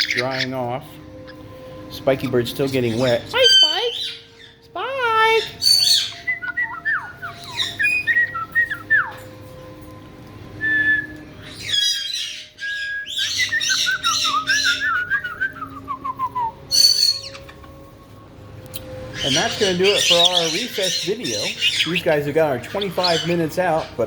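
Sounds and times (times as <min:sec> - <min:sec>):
parrots squawking: 0:00.0 - 0:09.3, 0:11.4 - 0:15.4, 0:16.2 - 0:17.9, 0:18.7 - 0:24.0
parrots whistling: 0:00.0 - 0:09.3, 0:10.6 - 0:18.0, 0:18.7 - 0:24.0
parrot screech: 0:11.5 - 0:12.5.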